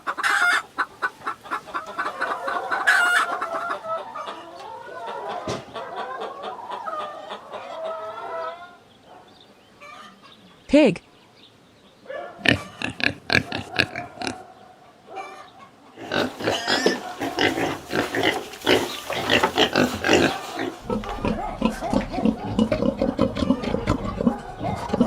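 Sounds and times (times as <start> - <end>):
pig grunting: 12.4 - 14.5, 16.0 - 25.0.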